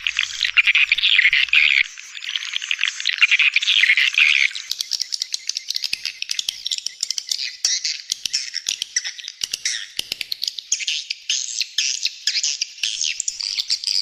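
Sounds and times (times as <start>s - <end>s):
sharp dry clicking chirps: 4.6s - 11.3s.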